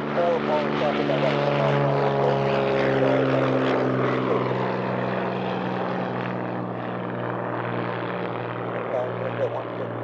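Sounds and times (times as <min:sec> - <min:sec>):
propeller plane engine hum: 0:00.0 - 0:10.0.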